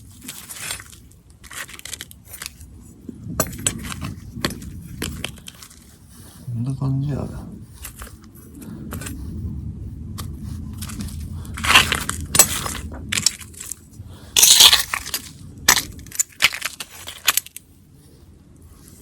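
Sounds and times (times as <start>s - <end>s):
embers crunching and cracking: 0.0s - 5.9s, 10.2s - 17.6s.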